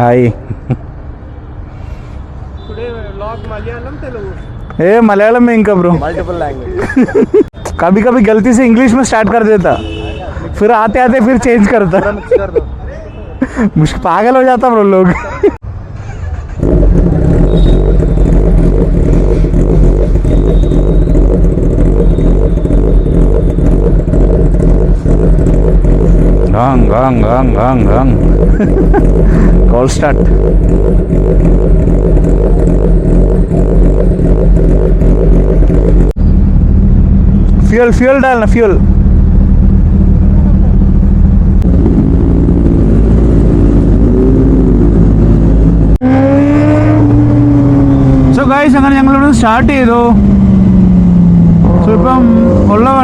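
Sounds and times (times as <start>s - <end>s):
motorcycle engine rumbling: 16.2s - 53.0s.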